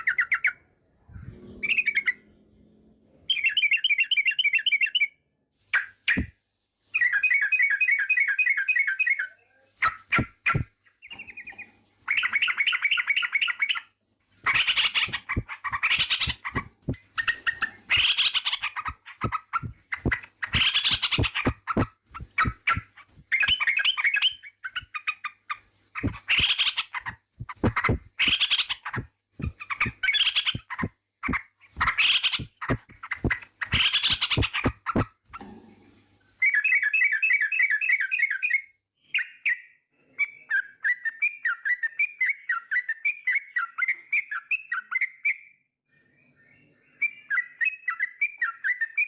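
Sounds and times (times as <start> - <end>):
bird singing chattering phrases: 7.0 - 35.4.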